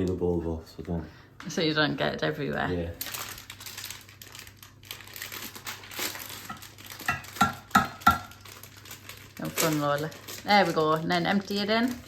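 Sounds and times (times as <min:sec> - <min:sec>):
packet crinkling and rustling: 0:02.4 - 0:12.0
sharp packet crackles: 0:02.8 - 0:12.0.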